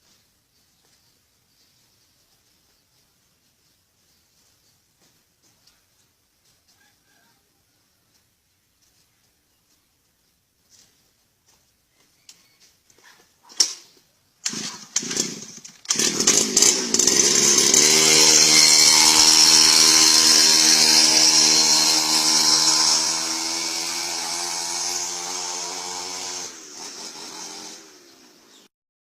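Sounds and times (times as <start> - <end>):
small engine running: 14.4 - 28.7.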